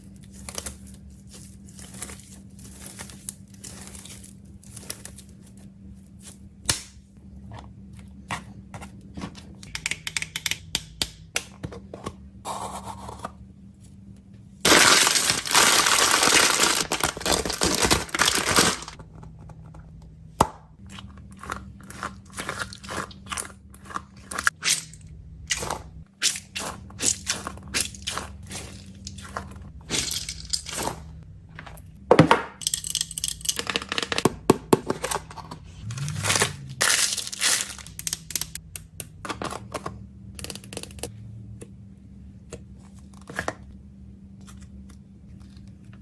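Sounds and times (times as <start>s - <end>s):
plastic packaging crinkling: 14.7s - 19.0s.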